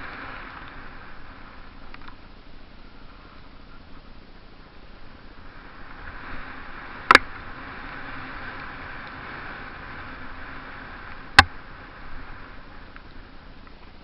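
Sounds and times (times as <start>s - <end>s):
tyre and wind rush: 0.0s - 14.0s.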